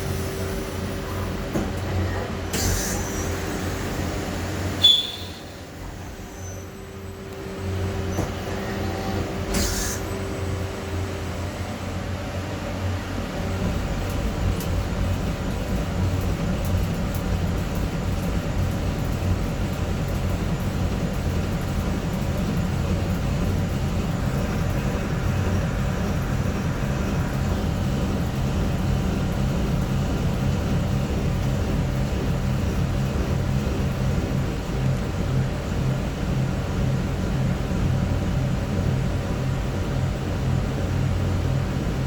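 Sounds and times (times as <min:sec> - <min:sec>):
lathe mechanical hum: 0:00.0 - 0:42.0.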